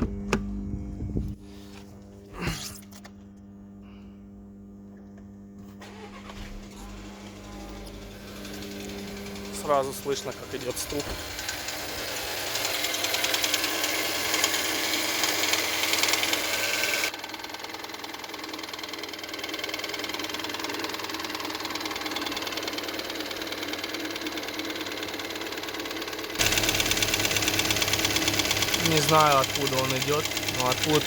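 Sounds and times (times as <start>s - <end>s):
car engine idling: 5.8s - 16.5s, 25.7s - 31.0s.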